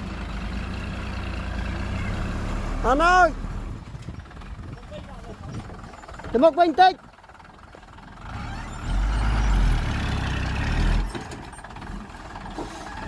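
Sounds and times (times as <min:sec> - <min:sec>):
heavy machine engine revving: 0:00.4 - 0:03.8, 0:08.0 - 0:13.0.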